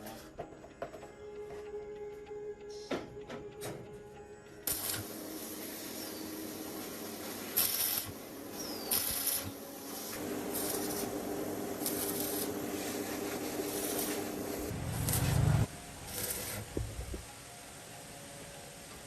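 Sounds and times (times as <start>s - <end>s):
short sharp hissing bursts: 4.7s - 17.3s.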